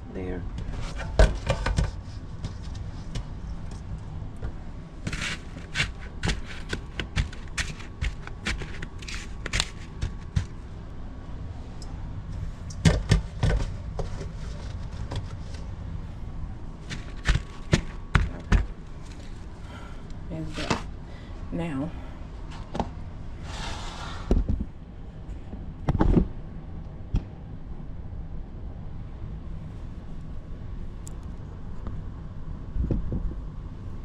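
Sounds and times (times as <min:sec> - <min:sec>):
snow scraping and packing: 0:05.0 - 0:10.6, 0:16.8 - 0:18.1.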